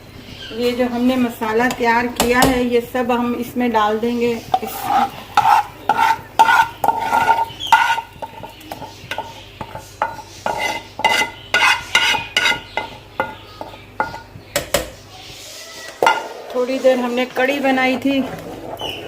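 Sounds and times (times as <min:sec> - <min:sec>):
metal spoon scraping a pot: 0:04.4 - 0:14.9.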